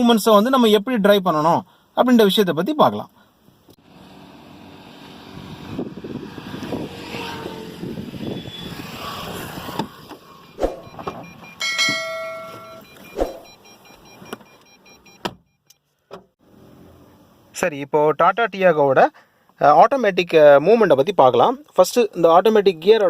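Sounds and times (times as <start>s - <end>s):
electronic beep: 10.4s - 15.7s.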